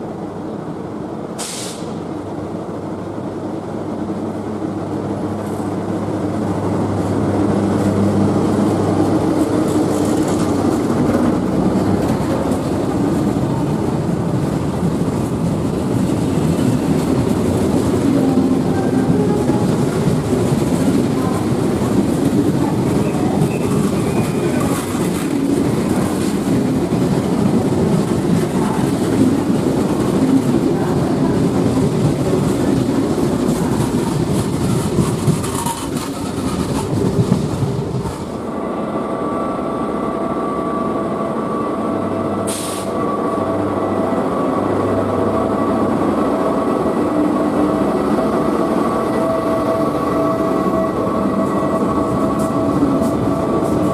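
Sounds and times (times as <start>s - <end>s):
electric locomotive humming: 0.0s - 53.9s
train wheels rumbling on rail: 0.0s - 53.9s
brief high hiss: 1.4s - 2.0s, 42.5s - 43.0s.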